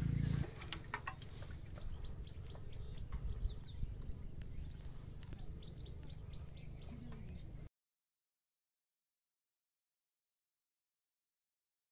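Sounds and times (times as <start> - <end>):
low steady rumble: 0.0 - 7.7
small birds chirping: 0.0 - 7.7.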